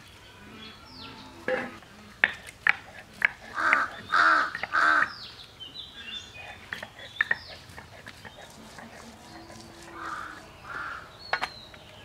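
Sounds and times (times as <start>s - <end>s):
bird cawing: 3.6s - 5.1s, 10.0s - 11.1s.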